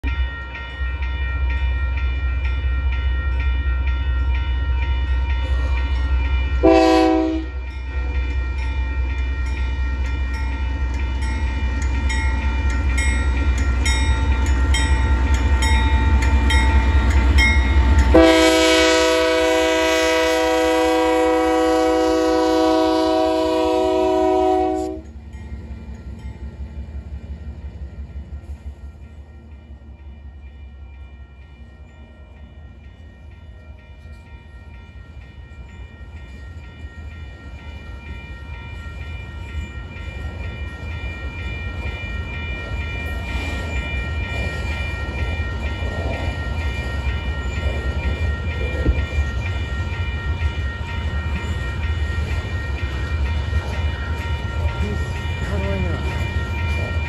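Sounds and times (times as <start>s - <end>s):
train air horn blasts: 6.6s - 7.6s, 18.1s - 25.1s
locomotive engines rumbling: 35.0s - 57.0s.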